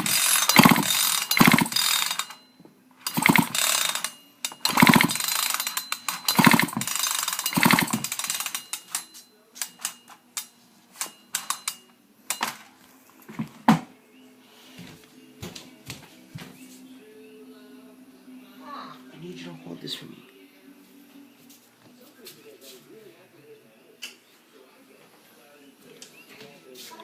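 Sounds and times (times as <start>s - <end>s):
engine spinning over without firing: 0.0s - 2.1s, 3.1s - 3.8s, 4.6s - 5.4s, 6.3s - 8.2s
chainsaw starter cord pulls: 0.0s - 2.2s, 3.0s - 8.5s.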